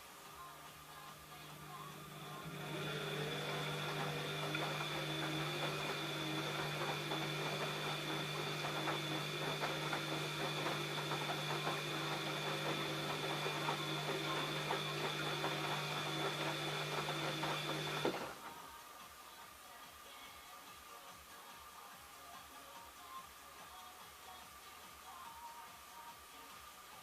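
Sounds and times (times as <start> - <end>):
washing machine motor hum: 1.1 - 18.6.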